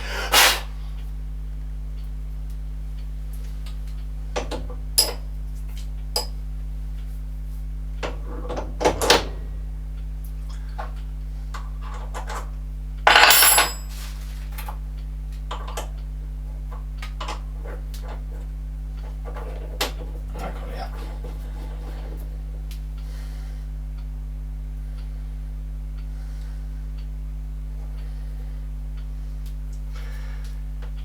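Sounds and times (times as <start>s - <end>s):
steady low hum: 0.0s - 31.0s
ringing metallic rattle: 13.1s - 14.0s
metal tools clinking: 13.1s - 14.2s.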